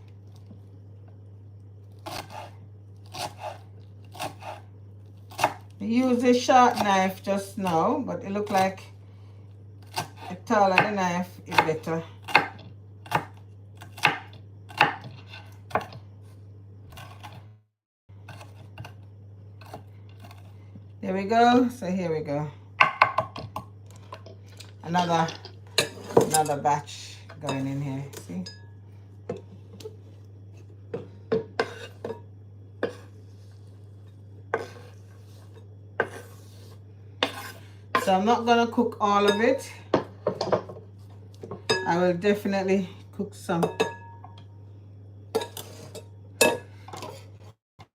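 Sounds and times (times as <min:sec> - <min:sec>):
steady low hum: 0:00.0 - 0:47.6
knife chopping on cutting board: 0:11.5 - 0:16.0.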